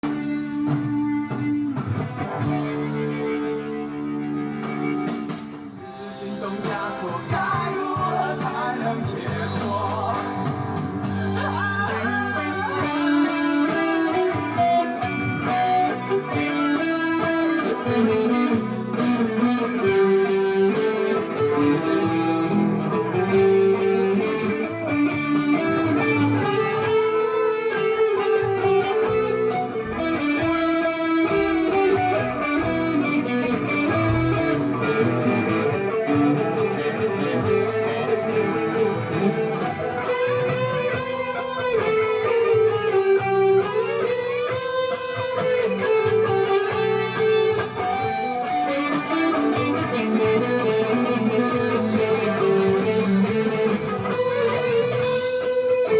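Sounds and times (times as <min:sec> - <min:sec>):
guitar playing picked melody: 0:00.0 - 0:55.9.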